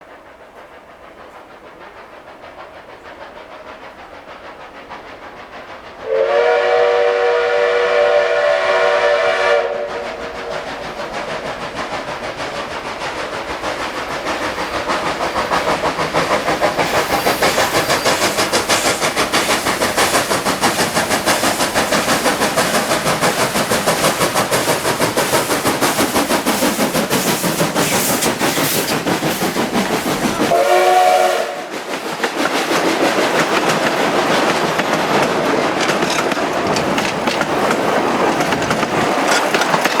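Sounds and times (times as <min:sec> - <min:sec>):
train running with rhythmic clatter: 0:00.0 - 0:40.0
train whistle blast: 0:06.0 - 0:10.5, 0:30.4 - 0:31.8.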